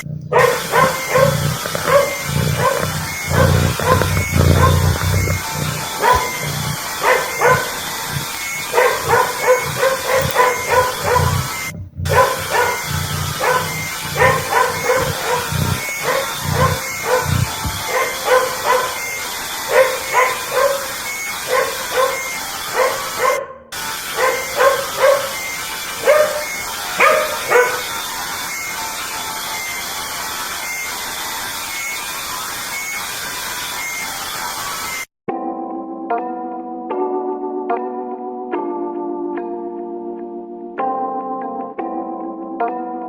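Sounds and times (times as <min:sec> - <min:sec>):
cat meowing: 0:00.0 - 0:23.4
dog barking and yipping: 0:00.0 - 0:30.8.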